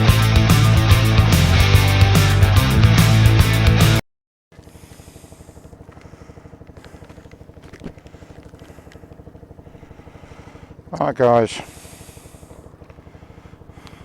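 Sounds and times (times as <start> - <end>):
rock music: 0.0 - 4.0
small motorcycle engine idling: 0.0 - 14.0.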